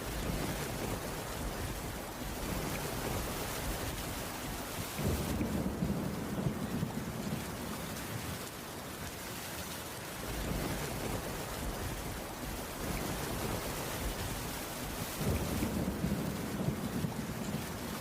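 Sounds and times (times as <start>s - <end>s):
heavy rain falling: 0.0s - 18.0s.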